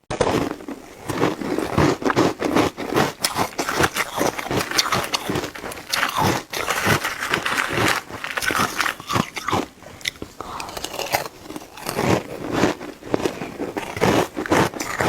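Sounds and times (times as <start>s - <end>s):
ice being chewed: 0.1s - 15.0s
wet mouth sounds: 0.1s - 15.0s.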